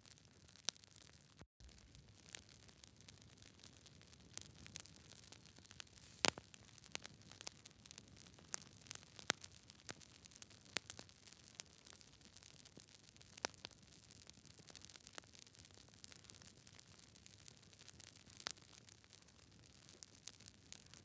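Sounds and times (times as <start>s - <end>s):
campfire wood popping and snapping: 0.5s - 18.9s, 19.6s - 20.9s
soft steady hiss: 1.3s - 10.8s.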